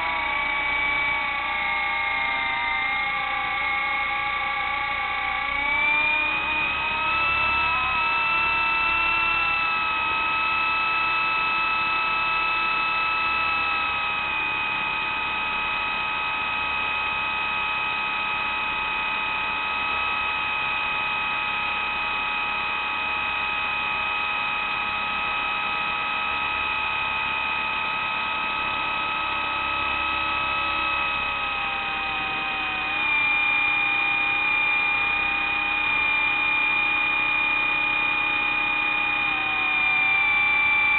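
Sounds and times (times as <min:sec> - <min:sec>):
model helicopter whining: 0:00.0 - 0:40.9.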